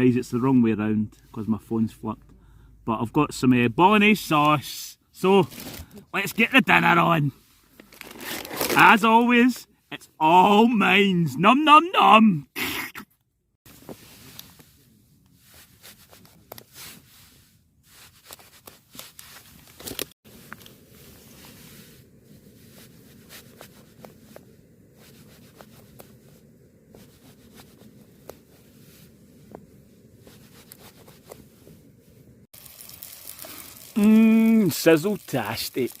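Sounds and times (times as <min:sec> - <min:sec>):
camp cooking gear handling: 0:05.4 - 0:06.0, 0:07.7 - 0:09.2, 0:18.0 - 0:31.8, 0:32.6 - 0:36.0
faint steady hiss with crackles: 0:13.7 - 0:36.0.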